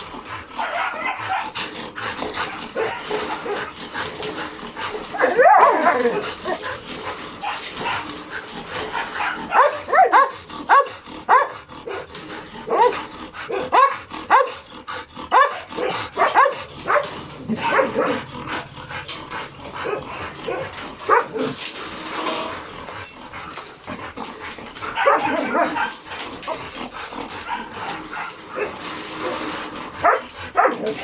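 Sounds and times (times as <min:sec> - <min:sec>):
dog yipping and whining: 0:05.2 - 0:06.8.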